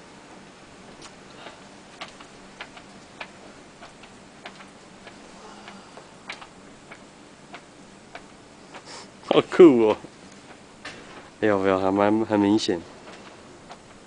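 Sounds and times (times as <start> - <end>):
faint low hum: 0.0 - 14.0
light mechanical clicking: 0.9 - 11.3.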